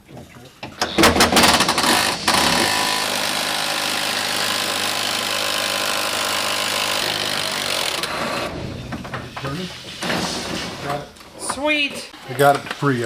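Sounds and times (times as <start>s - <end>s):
power tool running: 0.8s - 8.6s.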